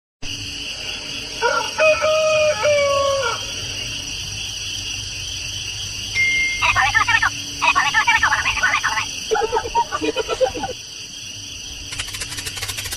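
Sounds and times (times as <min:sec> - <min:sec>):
rooster crowing: 0:01.2 - 0:03.8.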